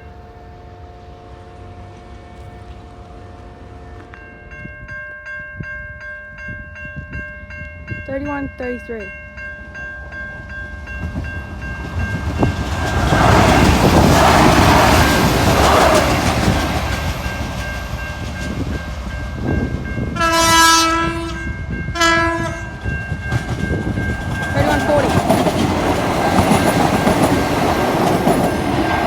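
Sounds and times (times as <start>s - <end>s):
diesel railcar passing: 0.0s - 29.0s
train horn blasts: 20.1s - 22.8s.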